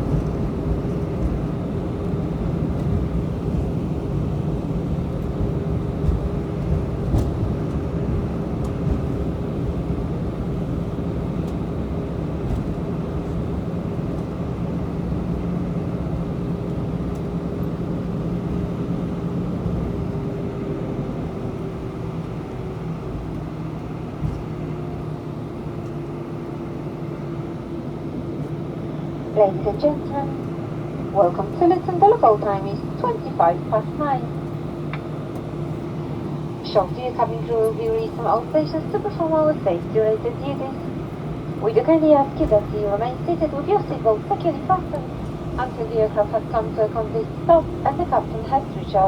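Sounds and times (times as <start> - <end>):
aircraft cabin engine rumble: 0.0 - 49.0
steady hums: 28.5 - 49.0.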